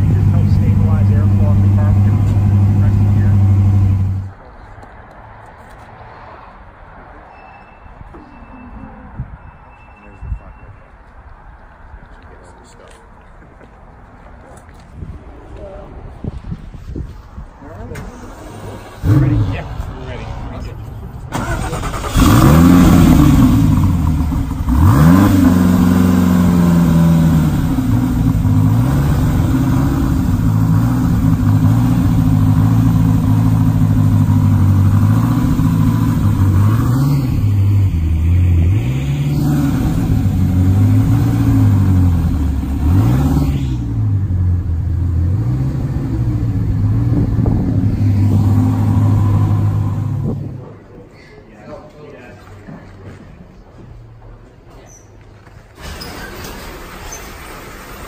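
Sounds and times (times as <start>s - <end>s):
car engine revving and idling: 0.0s - 4.4s, 18.0s - 50.8s.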